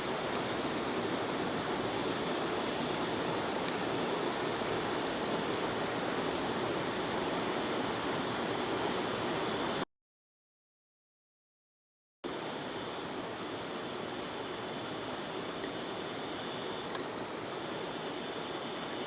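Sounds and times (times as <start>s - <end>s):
faint click: 16.9s - 17.2s.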